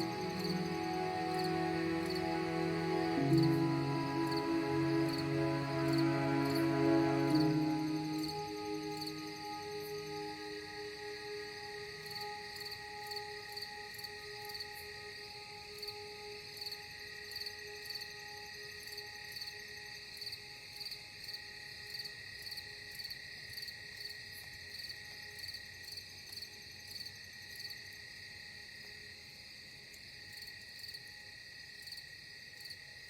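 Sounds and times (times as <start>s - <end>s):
ambient music tones: 0.0s - 19.4s
high insect trill: 0.0s - 21.4s
crickets chirping: 0.0s - 33.0s.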